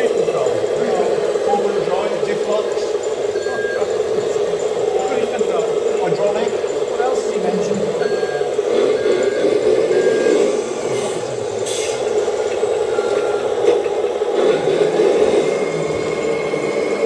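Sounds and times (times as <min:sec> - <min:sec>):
model truck mechanical buzz: 0:00.0 - 0:17.0
electronic reversing beeps: 0:00.4 - 0:05.7, 0:07.9 - 0:13.7.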